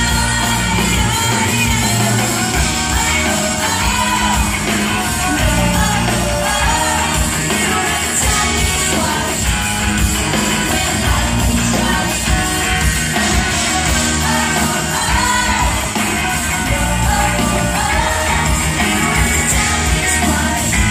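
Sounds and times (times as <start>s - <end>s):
lead vocals singing: 0.0s - 20.9s
pop-rock band playing: 0.0s - 20.9s.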